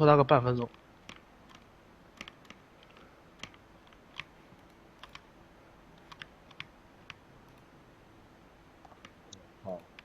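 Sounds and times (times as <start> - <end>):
computer keyboard clicks: 2.2 - 5.3, 6.0 - 7.2.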